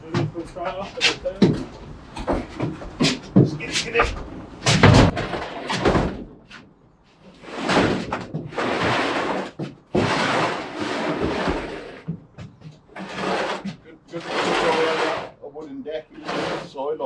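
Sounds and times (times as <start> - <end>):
knocks and thumps: 0.0 - 6.6, 7.6 - 13.9
metal tank scraping: 0.1 - 6.6, 7.2 - 12.2, 12.9 - 17.0.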